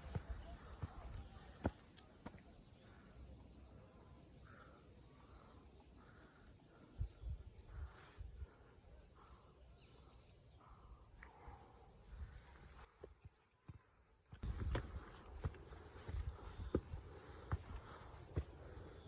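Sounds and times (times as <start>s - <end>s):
high insect drone: 0.0s - 12.9s
soft footsteps: 14.3s - 19.0s.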